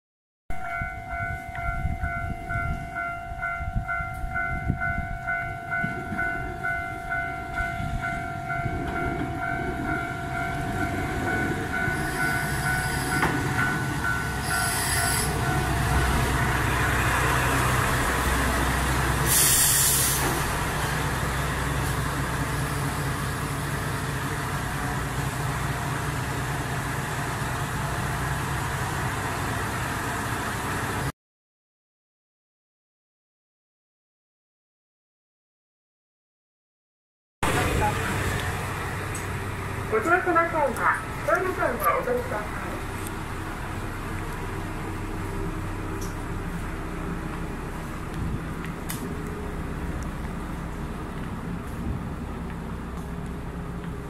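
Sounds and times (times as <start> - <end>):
diesel railcar rumbling: 0.5 - 31.1, 37.4 - 54.0
level-crossing bell ringing: 0.6 - 15.9
loud hiss: 14.4 - 15.4, 19.2 - 20.4.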